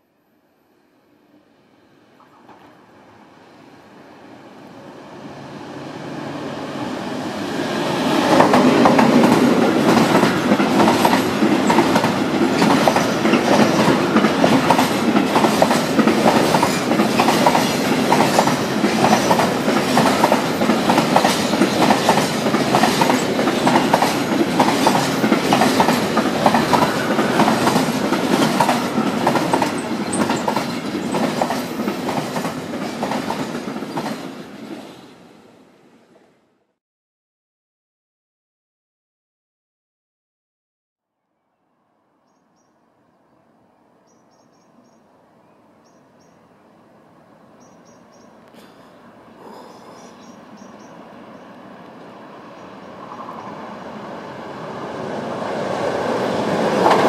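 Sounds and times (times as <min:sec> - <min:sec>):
freight train passing: 0:00.5 - 0:36.5, 0:42.1 - 0:57.0
wagon wheels clacking over rail joints: 0:08.3 - 0:34.2.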